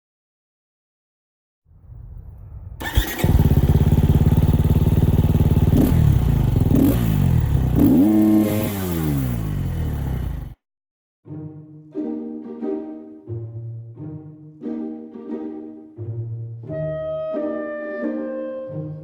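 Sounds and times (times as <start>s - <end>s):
motorcycle engine starting and revving: 2.8s - 10.6s.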